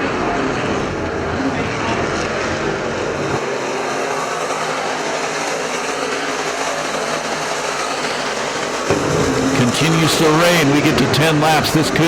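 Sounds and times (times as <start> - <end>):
race car engines racing: 0.0 - 12.0.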